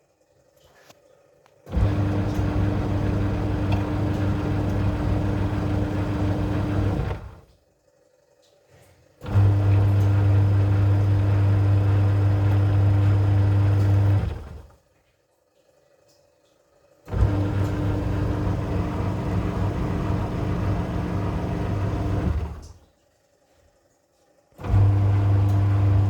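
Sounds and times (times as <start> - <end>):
washing machine motor humming: 1.7 - 7.6, 9.2 - 14.8, 17.0 - 22.9, 24.6 - 26.0.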